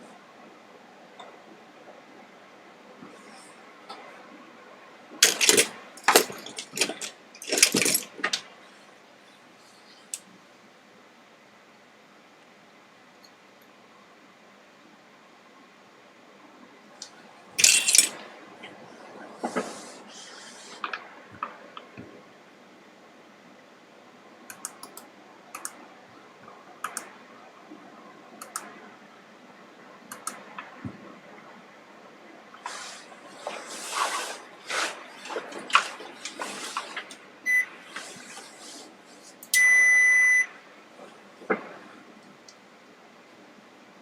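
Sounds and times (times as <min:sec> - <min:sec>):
electronic beeper beeping: 0:39.6 - 0:40.5.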